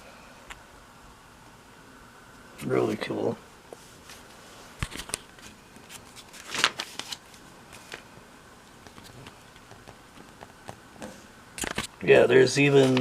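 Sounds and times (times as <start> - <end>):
paper pages rustling: 4.0 - 8.1, 8.8 - 10.8, 11.6 - 12.0, 12.6 - 13.0.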